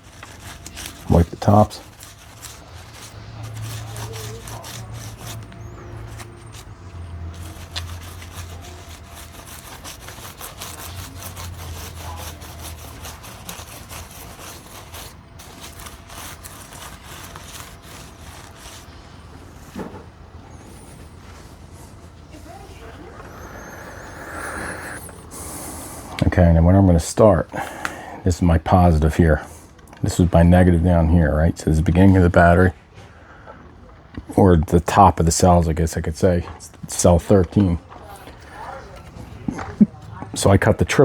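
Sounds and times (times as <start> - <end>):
cloth rubbing over cells: 0.0 - 26.5.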